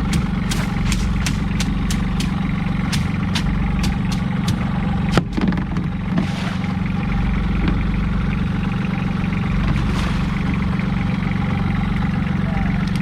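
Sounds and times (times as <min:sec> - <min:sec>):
sharp knock: 0:00.0 - 0:05.5
boat engine running: 0:00.0 - 0:13.0.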